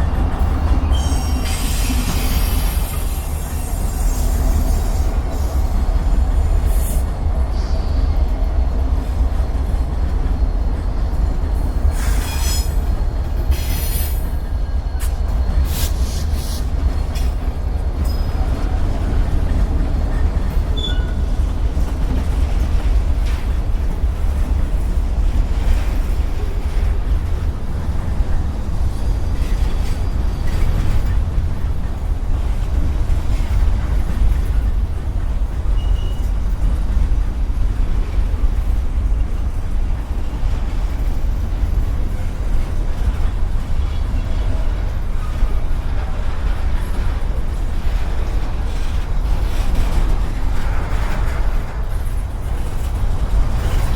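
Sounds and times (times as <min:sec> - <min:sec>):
train wheel squeal: 0:00.0 - 0:37.2, 0:39.4 - 0:53.9
freight train rumbling past: 0:00.0 - 0:53.9
high squeal: 0:00.8 - 0:05.0.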